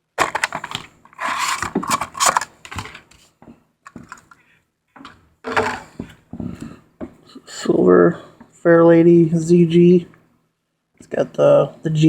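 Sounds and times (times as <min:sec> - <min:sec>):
packaging crinkling and rustling: 0:00.2 - 0:03.3.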